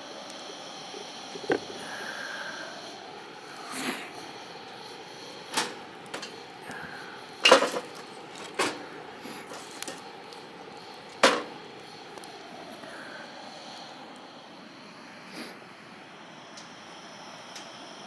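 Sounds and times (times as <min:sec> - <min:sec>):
objects knocking and clattering: 0:05.5 - 0:06.4, 0:07.4 - 0:10.0, 0:11.1 - 0:11.6.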